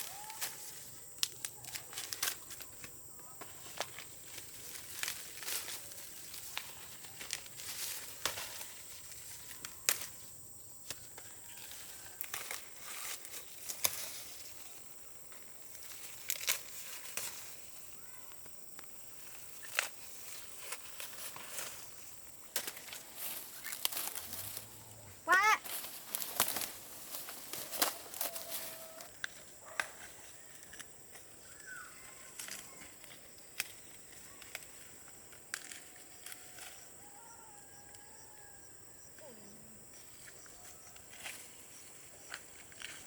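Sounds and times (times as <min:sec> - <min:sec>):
sharp snaps and cracks: 0:00.0 - 0:11.4, 0:12.0 - 0:14.6, 0:15.7 - 0:24.7, 0:25.6 - 0:31.7, 0:32.3 - 0:36.8
dry corn leaves rustling: 0:00.0 - 0:38.0, 0:39.9 - 0:43.0.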